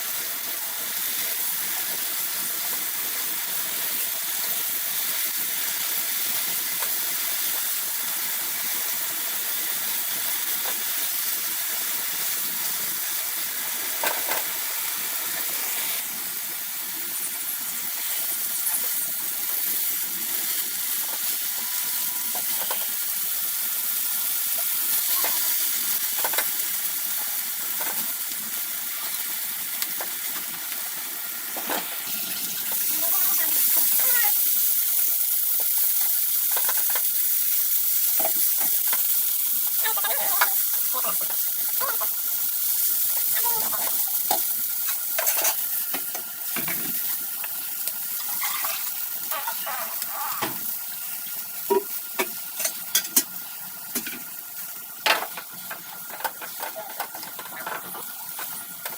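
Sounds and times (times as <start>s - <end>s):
food sizzling in a pan: 0.0s - 58.9s.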